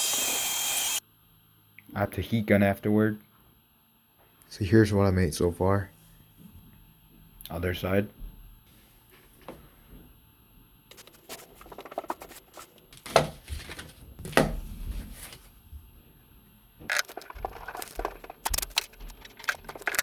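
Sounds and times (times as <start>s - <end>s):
small object handling noise: 10.9s - 14.4s, 16.8s - 20.0s.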